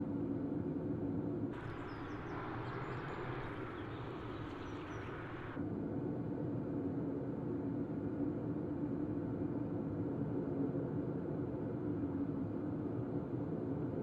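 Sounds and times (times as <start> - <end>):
faint bird chirps: 1.6 - 5.6
helicopter engine and rotor drone: 1.6 - 5.6
hissy outdoor ambience: 1.6 - 5.6.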